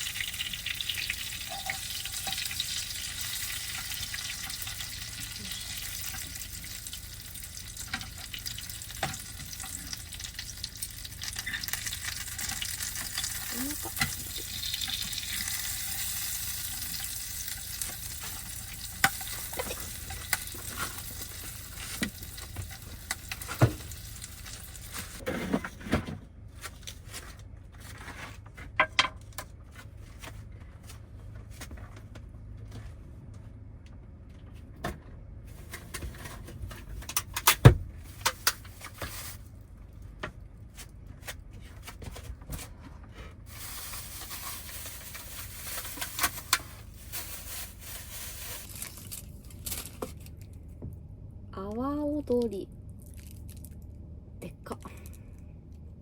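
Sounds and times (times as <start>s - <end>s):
chicken sizzling in a pan: 0.0s - 25.1s.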